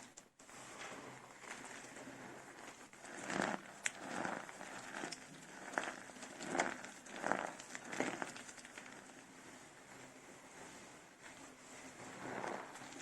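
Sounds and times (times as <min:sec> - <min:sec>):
dry soap crunching by hand: 0:02.6 - 0:09.2.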